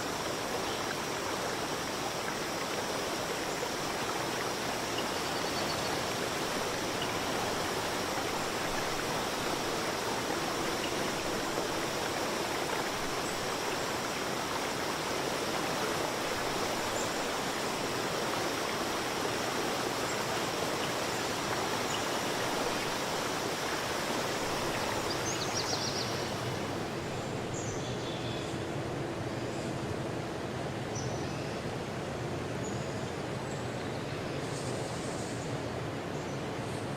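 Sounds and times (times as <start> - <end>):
stream flowing: 0.0 - 30.9.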